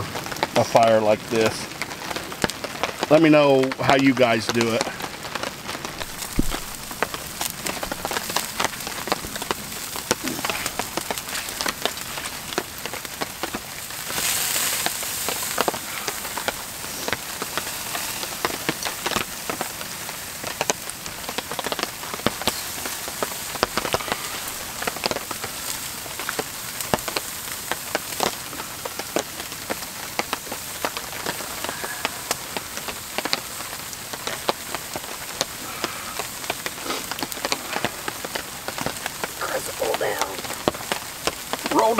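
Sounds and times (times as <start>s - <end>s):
raindrops ticking on tarp: 0.0s - 41.9s
steady rain: 0.0s - 41.9s.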